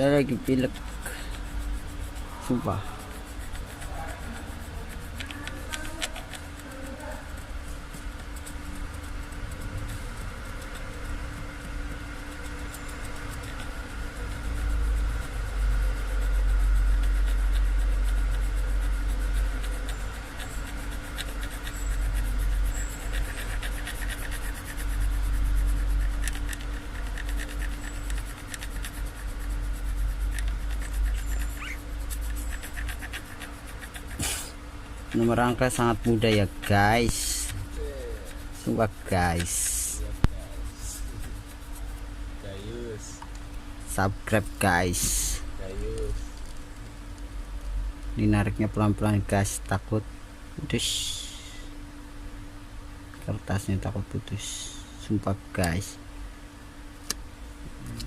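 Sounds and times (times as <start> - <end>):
scratchy rubbing on paper: 0.0 - 43.0, 43.8 - 46.7
steady hum: 0.0 - 58.0.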